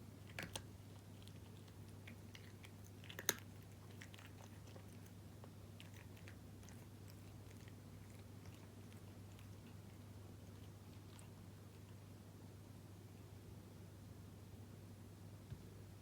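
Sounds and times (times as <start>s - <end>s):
steady low hum: 0.0s - 16.0s
cat crunching dry kibble: 0.2s - 12.0s.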